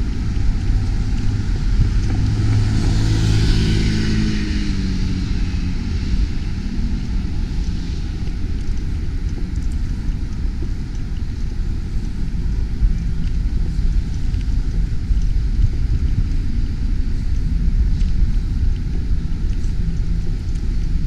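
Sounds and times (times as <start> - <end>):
wind rumble on microphone: 0.0 - 21.0
motor vehicle passing: 2.1 - 5.6.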